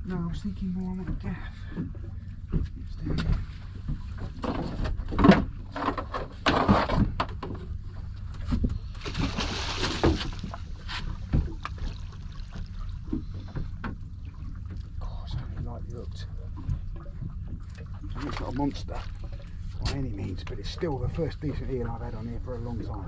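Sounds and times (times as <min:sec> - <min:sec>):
knocks and thumps on a boat: 0:00.0 - 0:23.0
low steady rumble: 0:00.0 - 0:23.0
water splash: 0:09.0 - 0:13.3.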